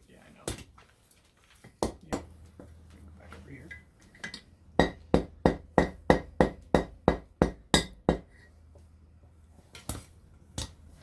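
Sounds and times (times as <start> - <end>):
hammer striking steel on anvil: 4.8 - 8.3.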